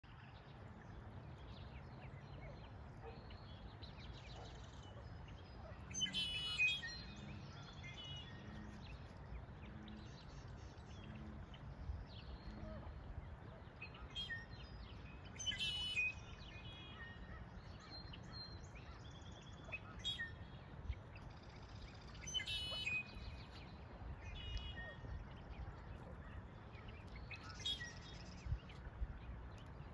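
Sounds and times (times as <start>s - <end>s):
birds chirping: 0.0s - 29.9s
low outdoor rumble: 16.3s - 29.9s.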